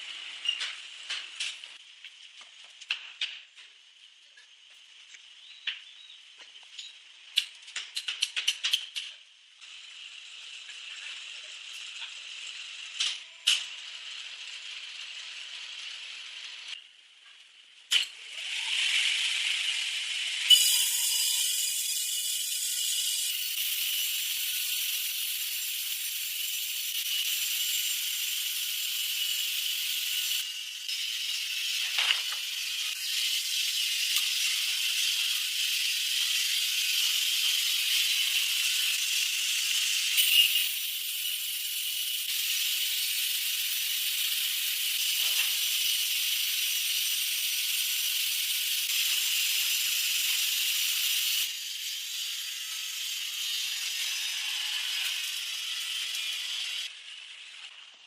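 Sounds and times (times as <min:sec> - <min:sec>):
power saw cutting wood: 0:18.2 - 0:57.8.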